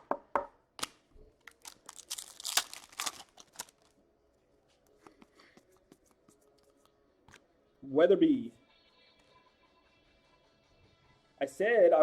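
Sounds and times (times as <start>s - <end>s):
cards being handled: 0.8s - 3.9s
foil wrapper tearing and crinkling: 1.5s - 3.9s.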